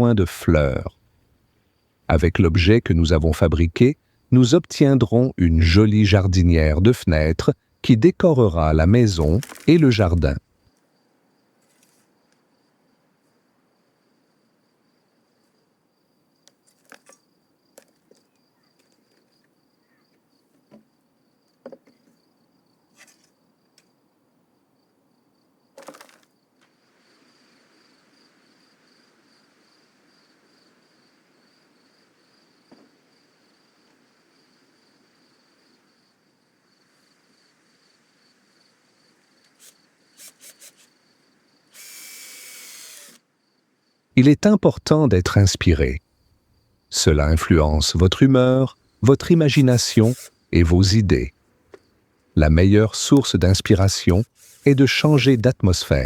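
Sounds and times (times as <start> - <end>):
crickets chirping: 6.8 - 56.0
light knocks and taps: 21.5 - 22.1.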